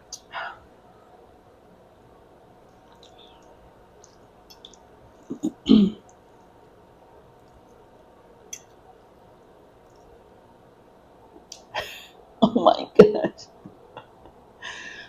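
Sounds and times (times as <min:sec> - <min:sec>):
wet mouth clicks chewing: 0:04.0 - 0:04.8.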